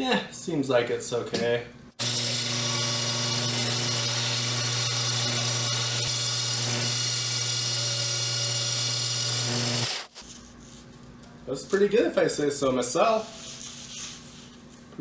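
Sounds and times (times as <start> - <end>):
bandsaw cutting foam: 2.0 - 10.4.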